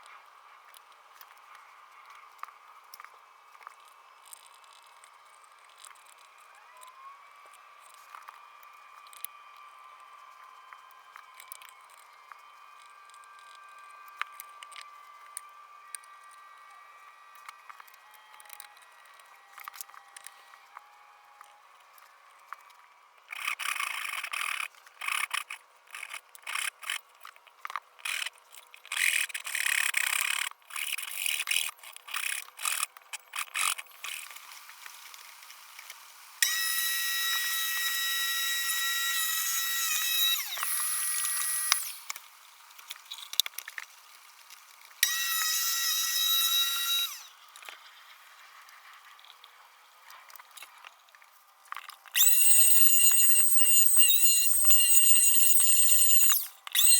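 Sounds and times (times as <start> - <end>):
motor whining: 34.0 - 42.3, 45.0 - 47.4, 52.2 - 56.9
handheld power tool bursts: 36.4 - 42.2, 45.0 - 47.3, 52.2 - 56.9.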